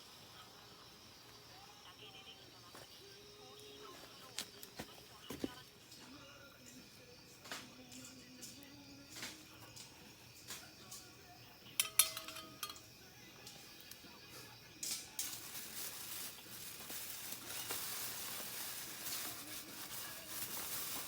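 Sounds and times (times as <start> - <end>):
food sizzling in a pan: 7.0 - 21.0
metal cookware clinking: 11.6 - 13.6.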